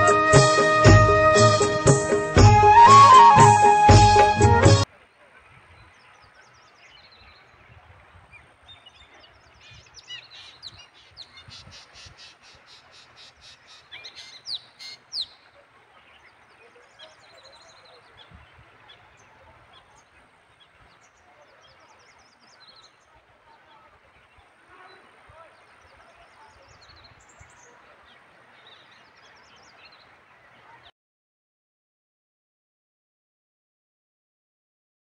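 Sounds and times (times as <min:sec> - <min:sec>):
birds calling rapidly: 0:05.0 - 0:23.1.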